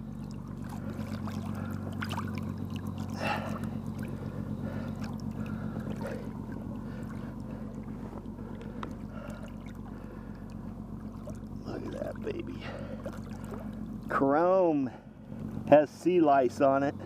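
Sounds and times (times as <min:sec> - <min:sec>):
boat motor humming: 0:00.0 - 0:17.0
knocks and clicks of gear: 0:07.4 - 0:09.2.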